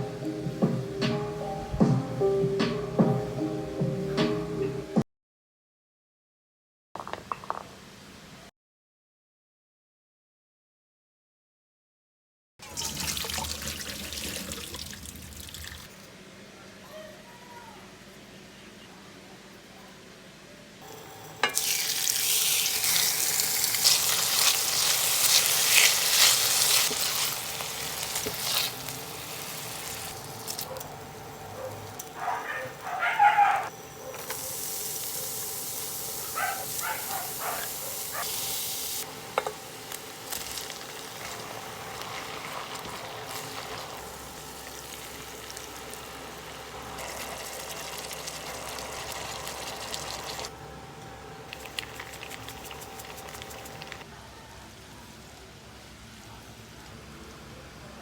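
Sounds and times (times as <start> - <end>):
food sizzling in frying pan: 20.8 - 32.2, 33.7 - 50.5
stirring clicks and scrapes: 51.5 - 54.0.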